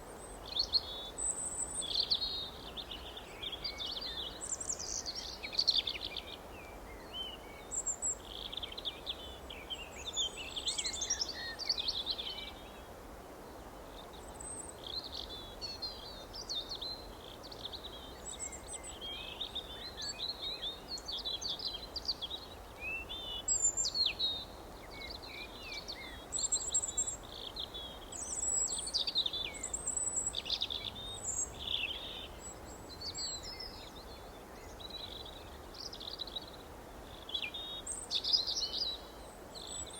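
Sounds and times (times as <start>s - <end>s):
low background hiss: 0.0s - 39.9s.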